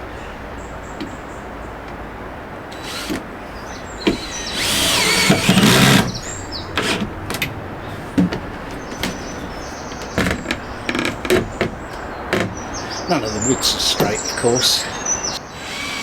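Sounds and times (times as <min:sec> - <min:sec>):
power drill running: 0:02.8 - 0:03.2, 0:04.1 - 0:06.2, 0:06.8 - 0:07.1, 0:15.4 - 0:16.0
short knocks: 0:04.0 - 0:12.8.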